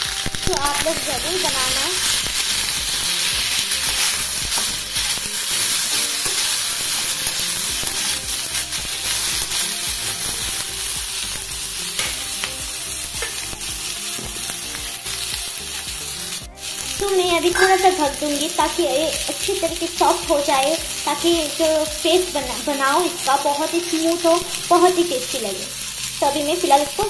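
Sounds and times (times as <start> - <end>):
vegetables sizzling in hot ghee: 0.0 - 27.0
spatula stirring and scraping: 1.1 - 19.7.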